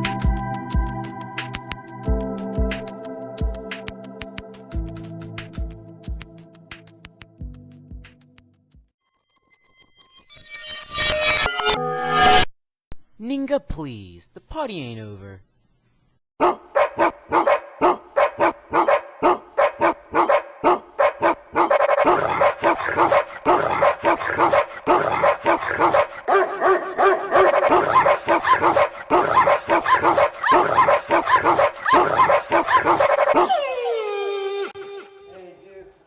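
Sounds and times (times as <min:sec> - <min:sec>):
dogs barking: 0:16.4 - 0:34.0
dog howling: 0:16.4 - 0:35.2.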